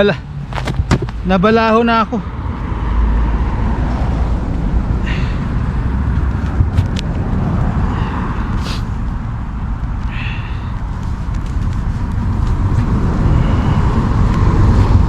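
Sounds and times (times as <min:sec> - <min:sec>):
vehicle passing: 0:00.0 - 0:10.7
road traffic rumble: 0:00.0 - 0:15.0.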